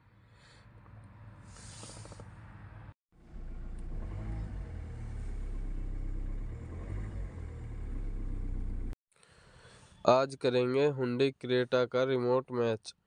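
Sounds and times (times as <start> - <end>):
car engine idling: 3.2 - 9.0.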